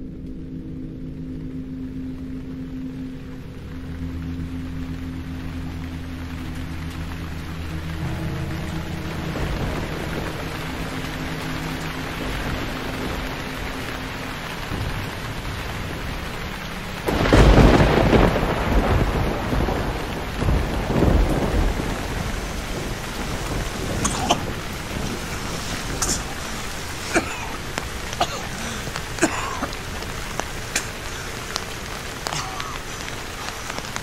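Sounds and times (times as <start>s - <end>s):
heavy rain falling: 0.0s - 34.0s
rolling thunder: 4.8s - 28.2s.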